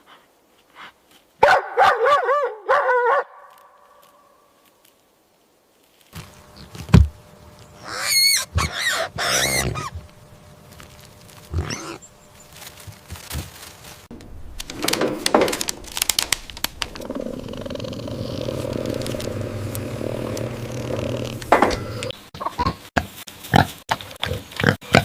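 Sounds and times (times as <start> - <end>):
loud animal calls: 7.7 - 12.6, 14.7 - 22.2
sharp clicks and crackling: 14.1 - 22.2.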